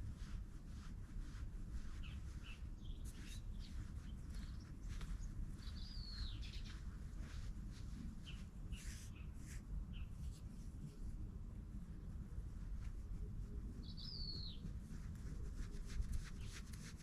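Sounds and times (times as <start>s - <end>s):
low background rumble: 0.0s - 17.0s
birds chirping: 2.0s - 7.3s, 13.8s - 14.7s.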